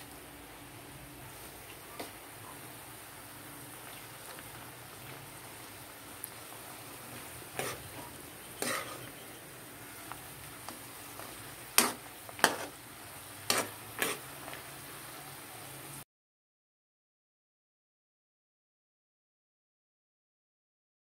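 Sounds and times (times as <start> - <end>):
food frying in oil: 0.0 - 16.0
metal spatula clacking on wok: 11.8 - 12.7.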